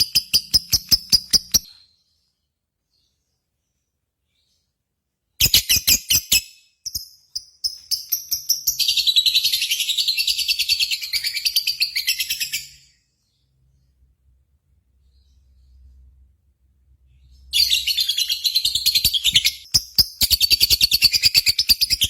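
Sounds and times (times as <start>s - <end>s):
bird chirping and trilling: 0.0s - 2.2s, 5.4s - 13.5s, 17.1s - 22.0s.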